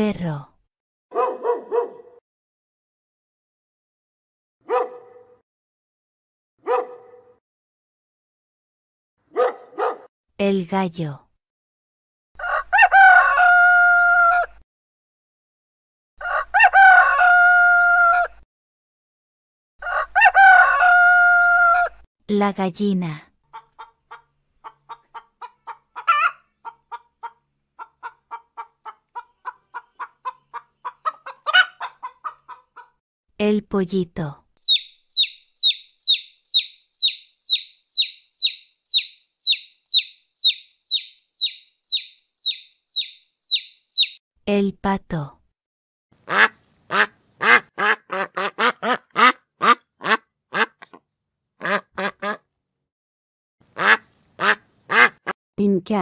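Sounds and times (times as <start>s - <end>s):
duck quacking: 23.5s - 32.9s, 46.2s - 51.0s, 51.6s - 52.5s, 53.7s - 55.4s
hen squawking: 23.5s - 32.9s, 34.6s - 44.2s
hen clucking: 23.5s - 33.0s, 34.6s - 44.2s, 46.3s - 51.0s, 51.6s - 52.4s, 53.8s - 55.4s.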